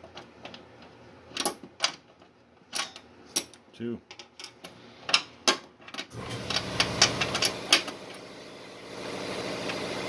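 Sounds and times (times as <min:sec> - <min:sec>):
steady machine hum: 0:06.1 - 0:10.0.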